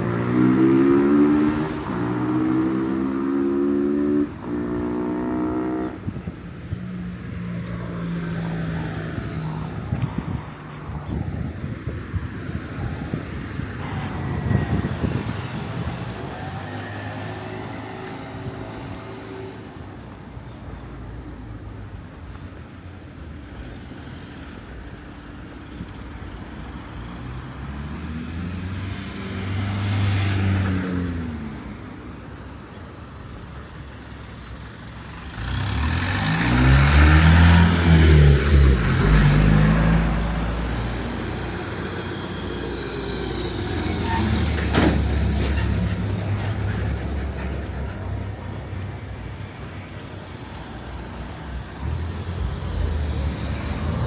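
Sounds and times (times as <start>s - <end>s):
vehicles driving past: 0.0s - 54.0s
heavy vehicle passing: 34.9s - 54.0s.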